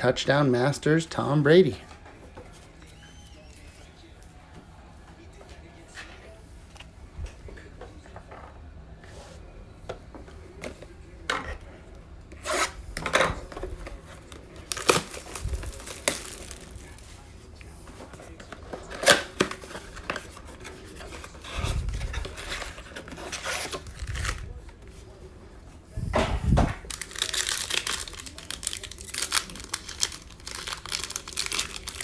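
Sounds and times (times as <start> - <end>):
cards rubbing and sliding: 14.2 - 17.2, 18.8 - 24.6
wrapper tearing and crinkling: 14.3 - 17.1, 22.0 - 24.5, 26.8 - 32.0.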